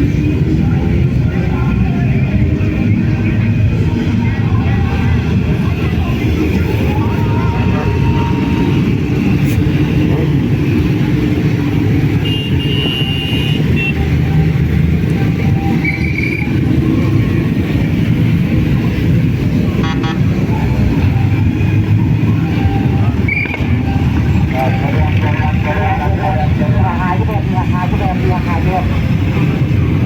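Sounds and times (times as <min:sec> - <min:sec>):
motor vehicles rumbling: 0:00.0 - 0:30.0
car horn: 0:12.0 - 0:14.2, 0:19.7 - 0:20.4.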